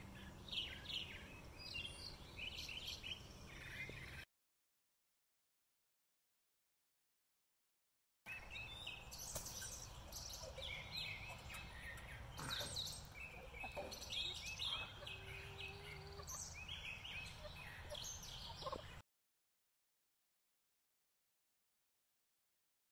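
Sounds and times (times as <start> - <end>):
songbirds chirping: 0.0 - 4.3, 8.3 - 19.0.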